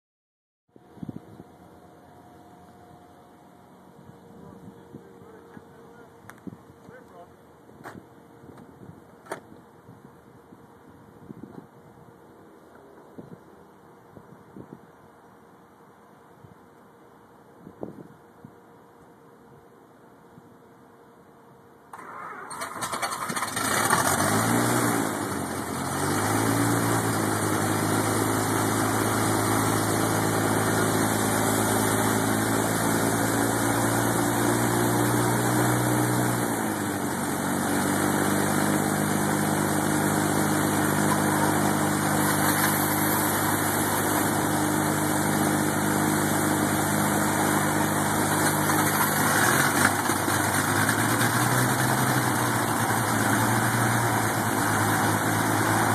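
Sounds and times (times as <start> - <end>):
piston aircraft engine starting and idling: 0.8 - 9.7, 21.8 - 55.9.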